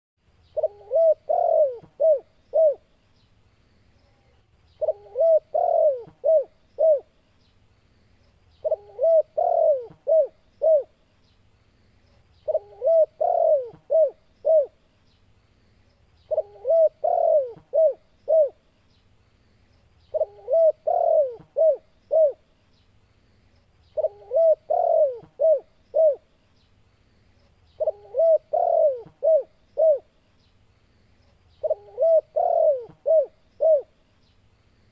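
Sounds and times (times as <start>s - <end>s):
dove cooing: 0.5s - 2.9s, 4.8s - 7.2s, 8.6s - 11.0s, 12.4s - 14.8s, 16.3s - 18.6s, 20.1s - 22.5s, 24.0s - 26.3s, 27.8s - 30.2s, 31.6s - 34.0s.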